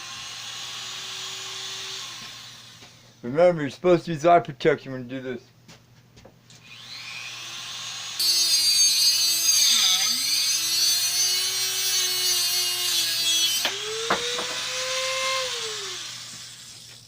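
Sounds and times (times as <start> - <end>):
rotary tool cutting steel rod: 6.7 - 17.0.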